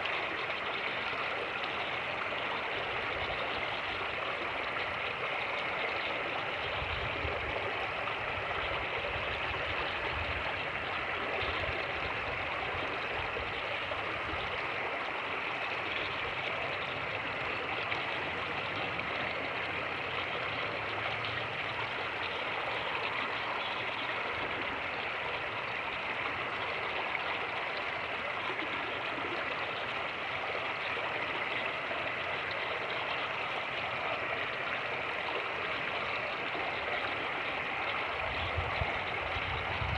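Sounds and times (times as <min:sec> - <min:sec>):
wind rumble on microphone: 0:06.7 - 0:10.8, 0:38.2 - 0:39.9.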